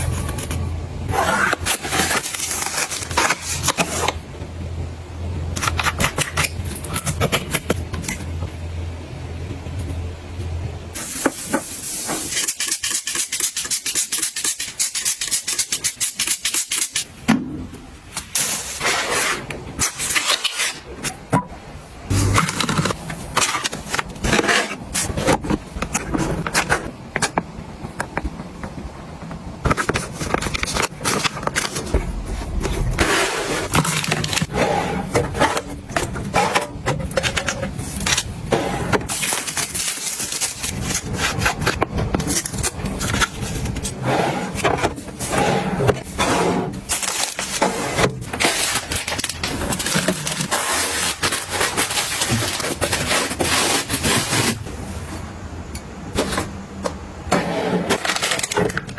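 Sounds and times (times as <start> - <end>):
kitchen items clattering: 29.6 - 55.2
scraping and rubbing: 29.7 - 55.3.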